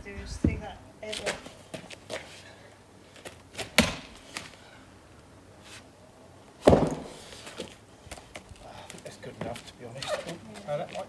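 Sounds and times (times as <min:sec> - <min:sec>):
axe striking log: 0:03.7 - 0:04.1, 0:06.6 - 0:07.4.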